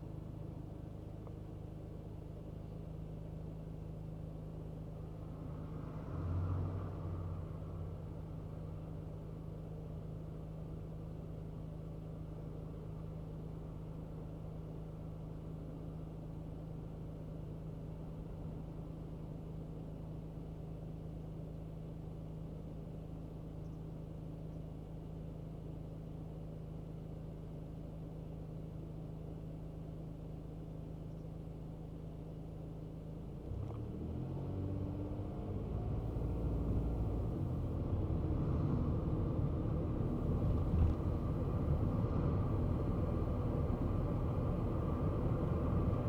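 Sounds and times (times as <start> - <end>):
small car engine idling and revving: 0.0 - 23.7, 27.2 - 46.0
road noise: 5.2 - 8.9, 33.5 - 46.0.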